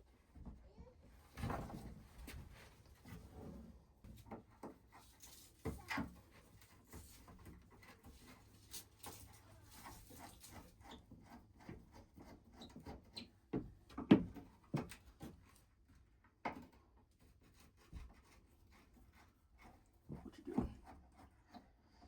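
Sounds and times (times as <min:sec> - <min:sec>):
wood knocking on wood: 0:13.5 - 0:15.0.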